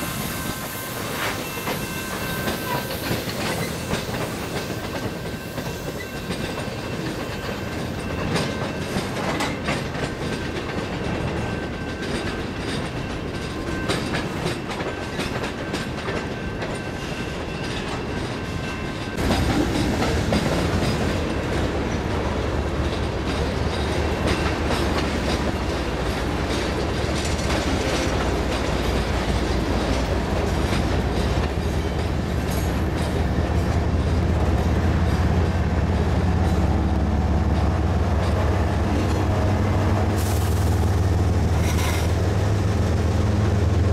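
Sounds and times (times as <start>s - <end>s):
freight train clickety-clack: 0.0s - 43.9s
low diesel locomotive rumble: 18.7s - 43.9s.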